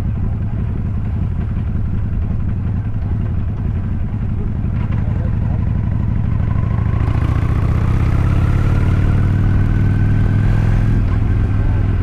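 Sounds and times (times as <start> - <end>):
vehicle engine running: 0.0 - 12.0
rising engine whine: 6.3 - 11.6.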